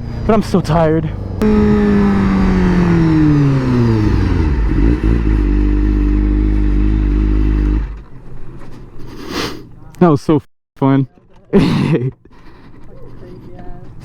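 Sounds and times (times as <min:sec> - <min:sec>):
motorcycle engine slowing to idle: 0:01.2 - 0:09.0.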